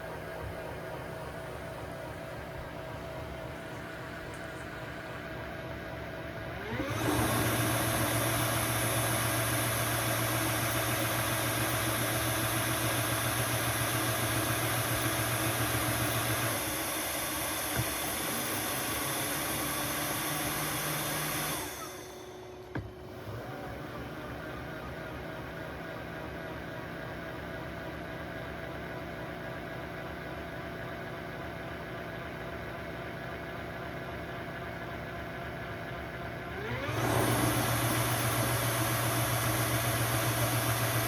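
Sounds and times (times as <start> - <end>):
vacuum motor whining: 6.4 - 25.1, 36.5 - 41.0.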